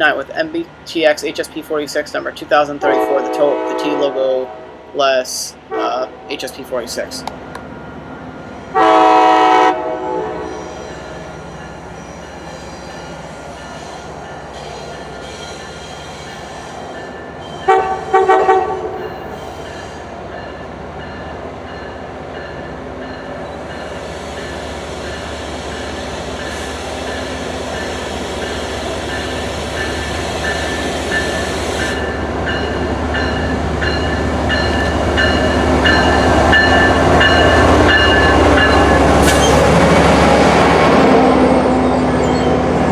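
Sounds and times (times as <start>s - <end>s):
train engine and wheel noise: 0.0s - 42.9s
train horn blasts: 2.8s - 4.8s, 8.7s - 10.7s, 17.7s - 19.1s.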